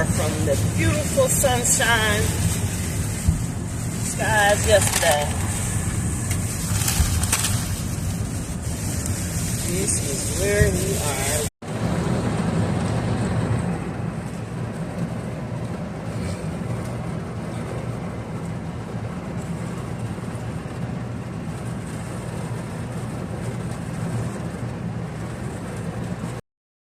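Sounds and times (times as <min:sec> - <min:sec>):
heavy rain falling: 0:00.0 - 0:11.5.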